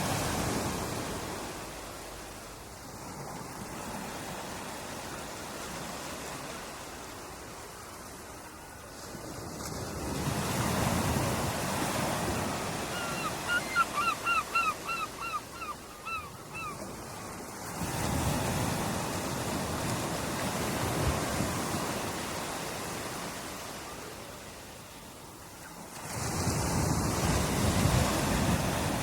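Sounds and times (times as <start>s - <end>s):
ocean waves breaking: 0.0s - 25.2s, 25.8s - 29.0s.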